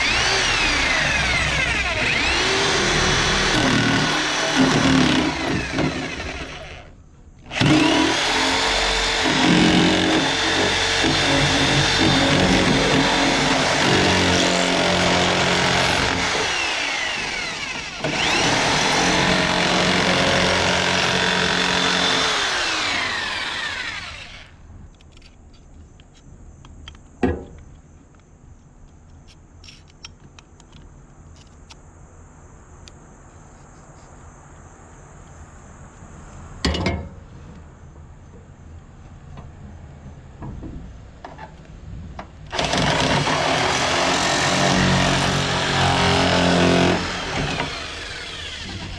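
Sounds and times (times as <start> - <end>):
power tool cutting: 0.0 - 6.9, 7.5 - 24.6, 42.5 - 48.9.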